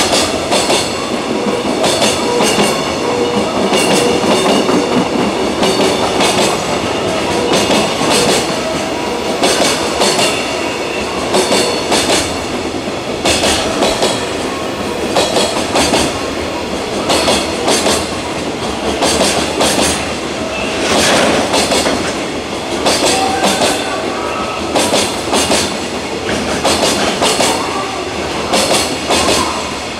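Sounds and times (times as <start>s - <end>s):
train wagons rolling rumble: 0.0s - 29.9s
train wheels clacking over rail joints: 0.0s - 29.9s.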